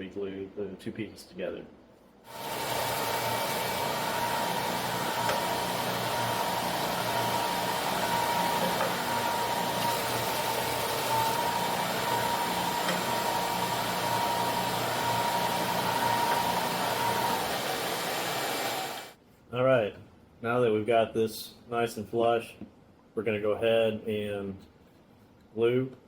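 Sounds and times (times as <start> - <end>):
electric belt sander whining: 2.3 - 19.2.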